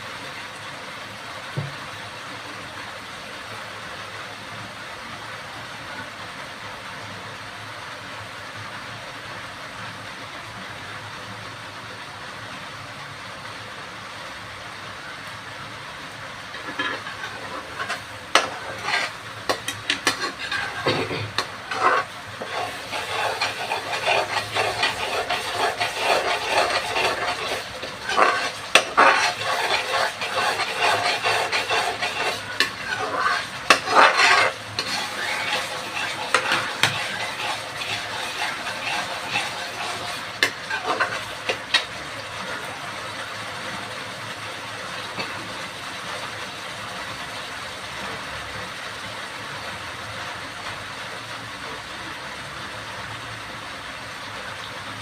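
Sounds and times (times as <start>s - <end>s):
steady hiss: 0.0s - 47.2s
spoon scraping in a pot: 16.5s - 42.0s.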